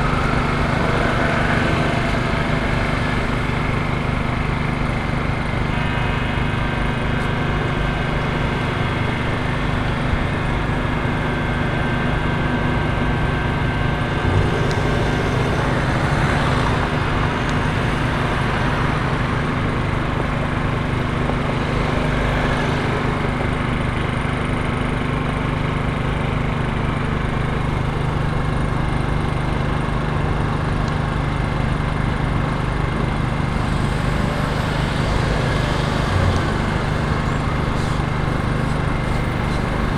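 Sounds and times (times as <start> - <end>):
small engine humming: 0.0 - 39.9.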